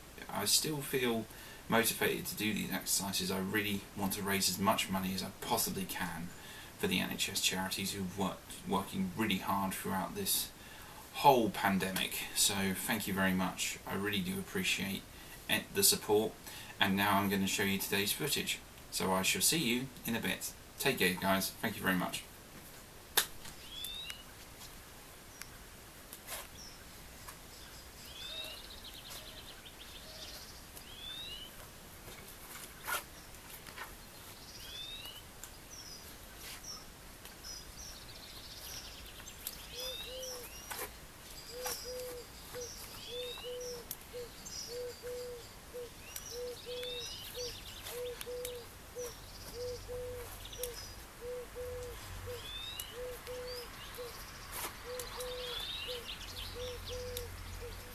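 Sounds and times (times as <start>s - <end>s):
low bird call: 39.6s - 57.9s.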